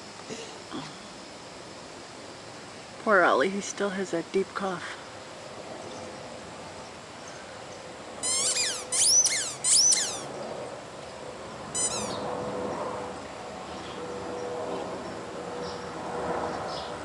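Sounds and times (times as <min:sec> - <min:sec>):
squeaky dog toy squeaking: 0:08.2 - 0:10.3, 0:11.8 - 0:12.2.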